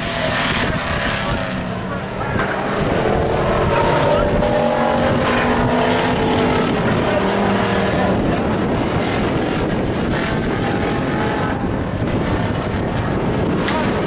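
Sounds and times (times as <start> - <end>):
race truck engines roaring: 0.0 - 14.0.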